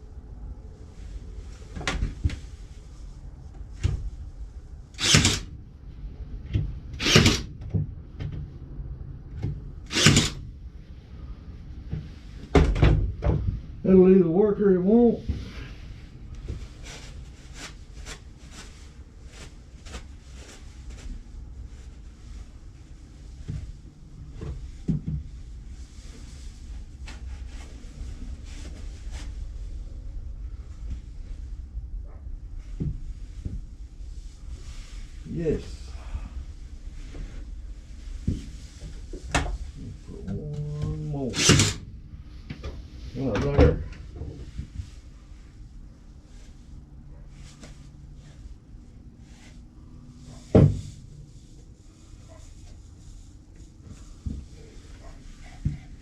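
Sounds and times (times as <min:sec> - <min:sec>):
steady low hum: 0:00.0 - 0:56.0
short loud bursts of noise: 0:04.9 - 0:05.5, 0:07.0 - 0:07.5, 0:09.8 - 0:10.4, 0:41.3 - 0:41.8.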